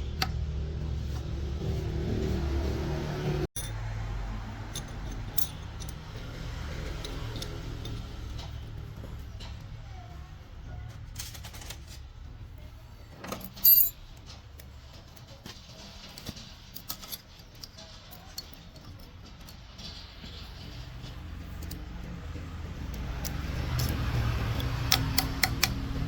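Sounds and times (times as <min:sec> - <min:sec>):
metal tools clinking: 0:04.6 - 0:08.8, 0:13.2 - 0:14.4.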